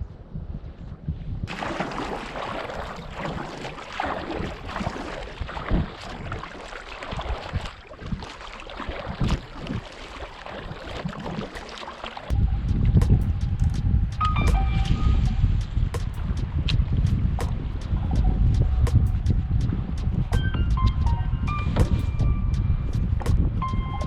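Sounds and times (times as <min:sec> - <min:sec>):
wind rumble on microphone: 0:00.0 - 0:09.9, 0:12.3 - 0:24.0
water lapping against kayak hull: 0:01.5 - 0:18.3.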